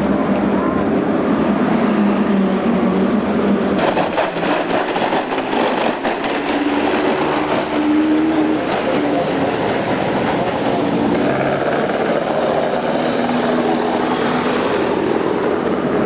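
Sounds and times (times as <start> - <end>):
steady engine hum: 0.0 - 16.0
rough clattering engine: 3.8 - 14.7.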